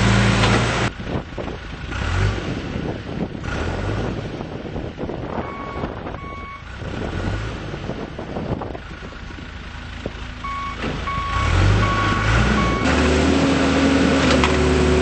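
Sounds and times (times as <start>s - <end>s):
diesel engine running: 0.0s - 15.0s
backup alarm beeping: 5.4s - 6.6s, 10.4s - 12.9s.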